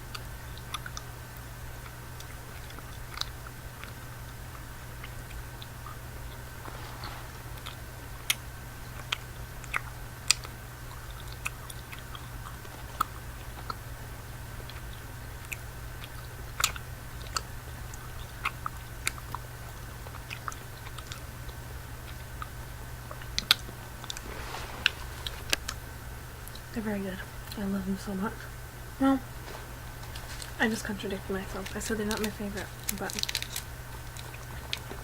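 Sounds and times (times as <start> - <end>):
chewing candy: 0.0 - 27.6, 29.2 - 35.0
low hum: 0.0 - 35.0
wet mouth clicks: 9.0 - 13.8, 14.6 - 19.4.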